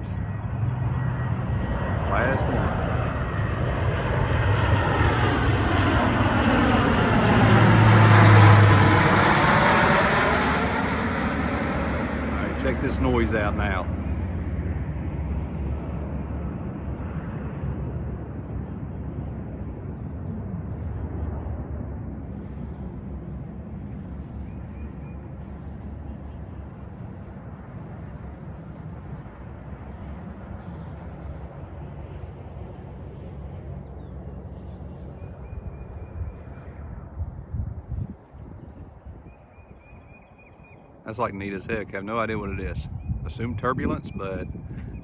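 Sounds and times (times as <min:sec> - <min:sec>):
airplane roar overhead: 0:00.0 - 0:45.0.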